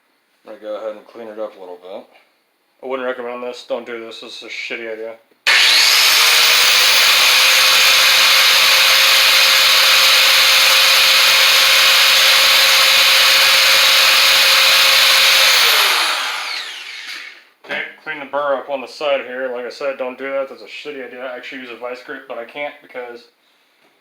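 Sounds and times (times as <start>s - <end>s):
power grinder grinding steel: 5.5s - 17.4s.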